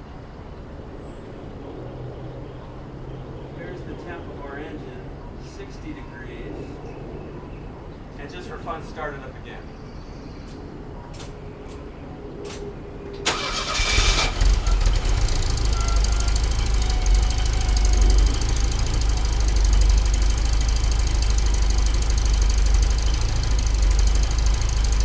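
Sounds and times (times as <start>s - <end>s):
car engine idling: 13.2s - 25.0s
car starter cranking: 13.2s - 25.0s.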